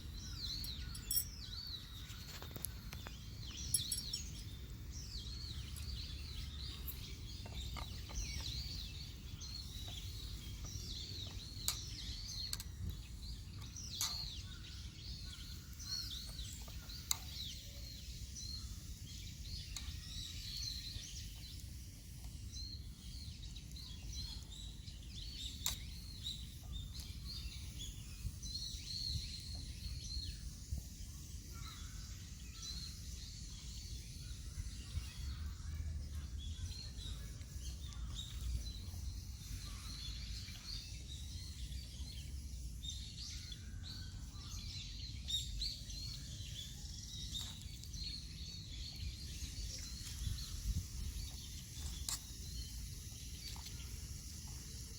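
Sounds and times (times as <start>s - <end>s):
birds chirping: 0.0s - 54.9s.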